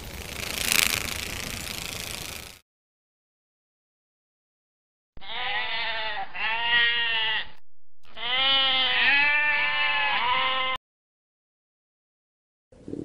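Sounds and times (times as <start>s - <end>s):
sheep bleating: 5.2s - 10.8s.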